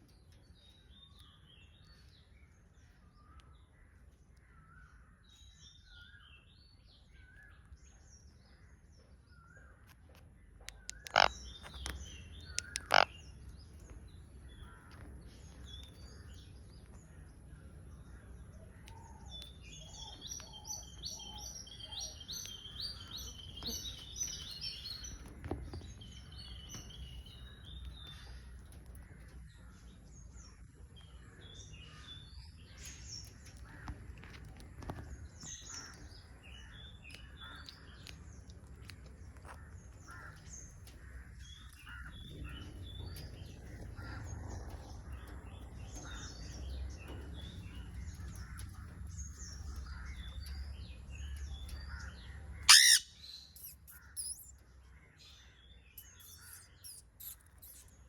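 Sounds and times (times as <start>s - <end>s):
birds chirping and twittering: 0.0s - 58.0s
low outdoor rumble: 0.0s - 58.0s.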